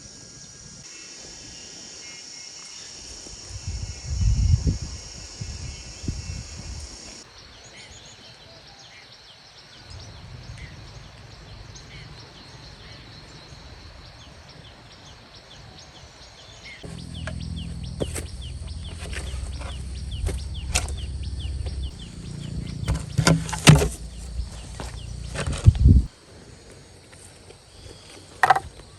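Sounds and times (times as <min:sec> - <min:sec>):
insects chirring: 0:00.0 - 0:28.9
low rumble: 0:16.8 - 0:26.2
sharp knocks and clicks: 0:22.8 - 0:25.7.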